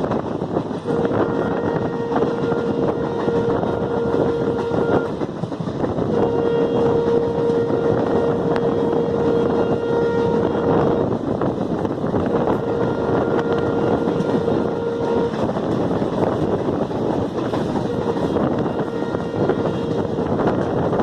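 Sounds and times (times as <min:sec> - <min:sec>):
train carriages rumbling: 0:00.0 - 0:21.0.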